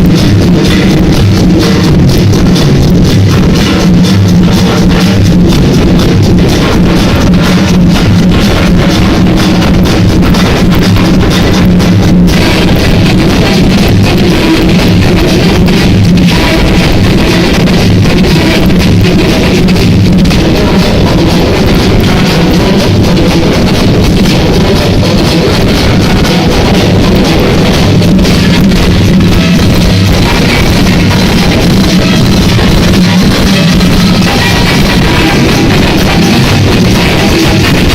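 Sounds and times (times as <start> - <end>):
loud music with drums and bass: 0.0 - 37.9.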